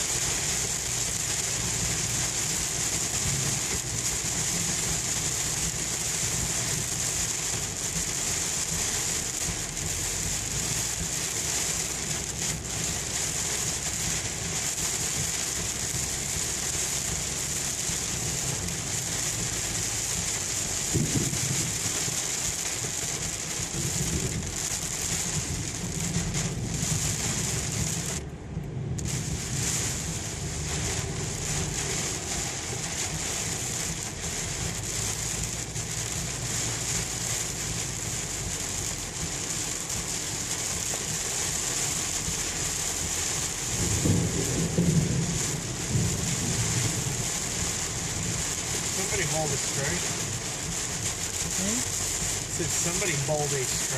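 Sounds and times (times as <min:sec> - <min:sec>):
heavy rain drumming on car: 0:00.0 - 0:53.9
road rumble: 0:00.0 - 0:53.9.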